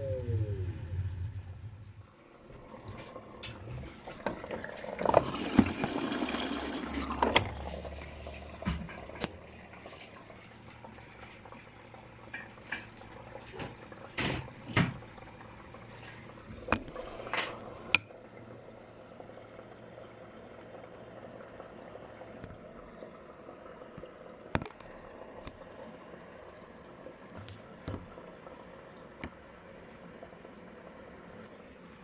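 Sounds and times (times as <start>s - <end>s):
washing machine low hum: 0.0s - 32.0s
washing machine water sloshing: 1.2s - 19.3s.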